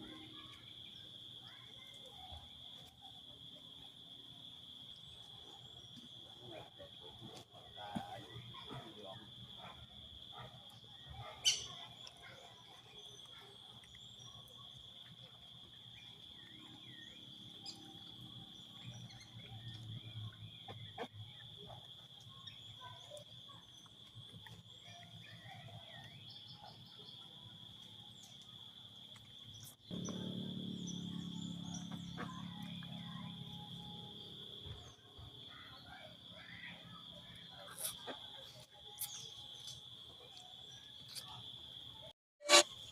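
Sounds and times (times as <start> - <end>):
faint insect chirps: 0.0 - 42.9
high insect drone: 28.1 - 38.1.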